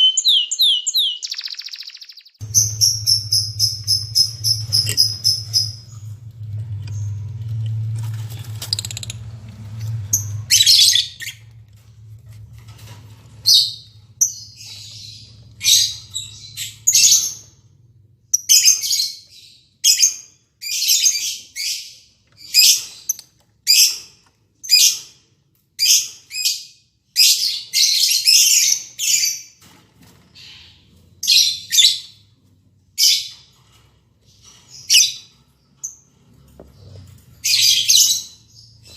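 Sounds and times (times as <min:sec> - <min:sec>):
lovebirds harsh high calls: 0:00.0 - 0:06.0
low hum: 0:02.4 - 0:16.8.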